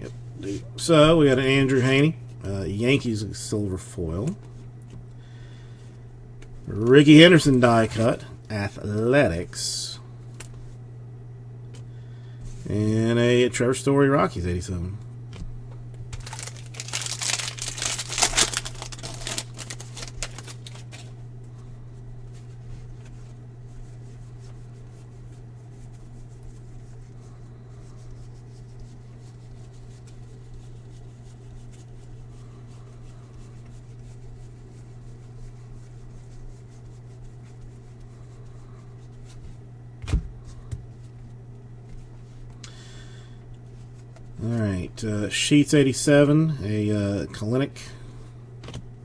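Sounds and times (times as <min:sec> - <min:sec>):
low electrical hum: 0:00.0 - 0:49.0
plastic wrapper tearing and crinkling: 0:16.1 - 0:21.1.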